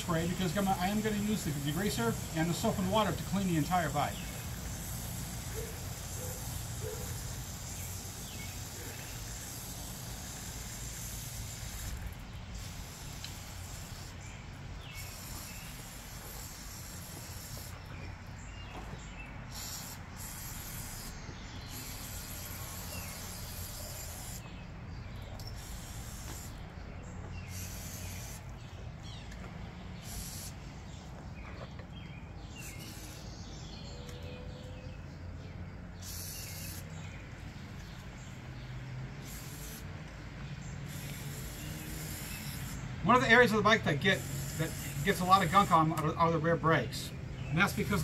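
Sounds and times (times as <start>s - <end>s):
aerosol can spraying: 0.0s - 18.0s, 19.5s - 24.6s, 25.4s - 26.6s, 27.5s - 28.5s, 30.0s - 30.7s, 32.6s - 33.4s, 36.0s - 37.0s, 39.1s - 40.1s, 40.8s - 47.0s.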